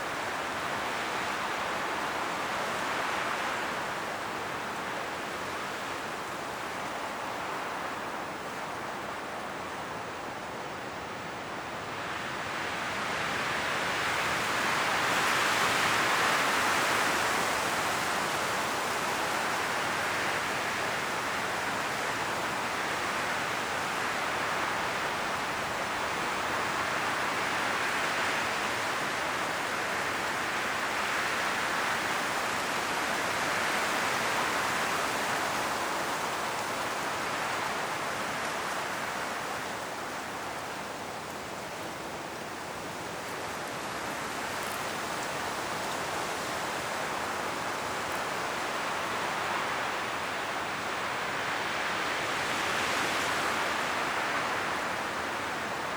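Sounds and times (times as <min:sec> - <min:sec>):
wind through trees: 0:00.0 - 0:55.9
leaves rustling: 0:11.4 - 0:55.9.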